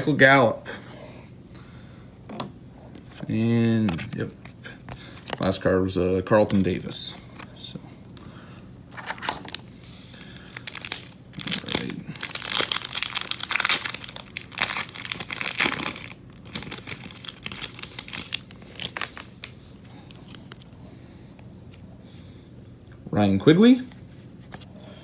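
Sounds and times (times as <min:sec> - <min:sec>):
foil wrapper tearing and crinkling: 0:09.0 - 0:09.6, 0:10.3 - 0:20.7.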